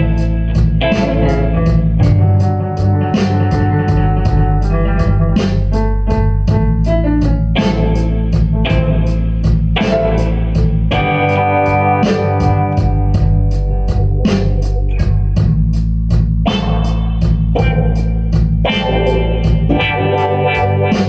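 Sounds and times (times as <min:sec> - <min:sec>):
blues-rock band playing: 0:00.0 - 0:15.7, 0:16.4 - 0:21.0
even cymbal beat: 0:00.0 - 0:21.0
sustained organ chords: 0:04.0 - 0:15.3.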